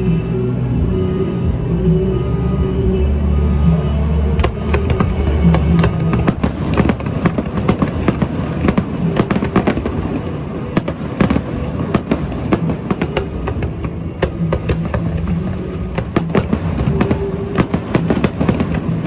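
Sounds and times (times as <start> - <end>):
fireworks crackling and banging: 3.8 - 19.0.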